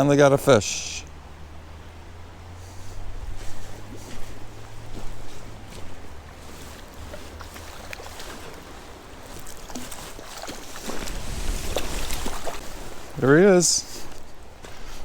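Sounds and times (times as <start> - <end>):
creek water splashing: 0.0 - 15.0
low rumble on microphone: 10.9 - 13.2.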